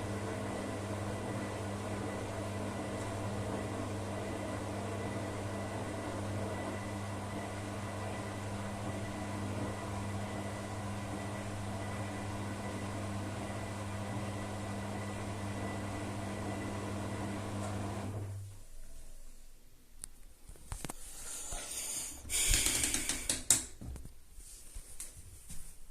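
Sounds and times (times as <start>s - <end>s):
washing machine motor hum and whir: 0.0s - 19.1s.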